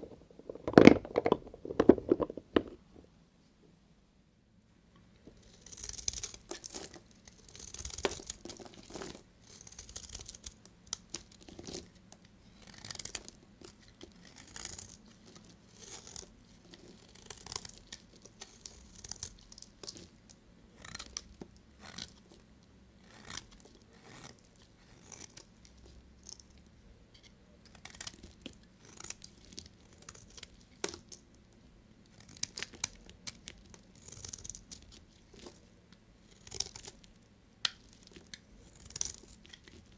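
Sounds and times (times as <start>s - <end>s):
knife cutting soap: 12.5s - 20.2s, 23.0s - 26.5s.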